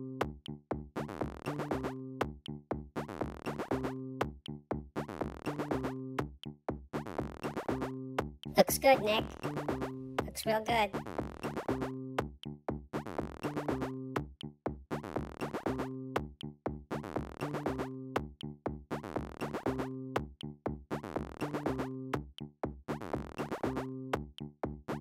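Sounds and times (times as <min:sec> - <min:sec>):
drum machine beat: 0:08.5 - 0:11.9.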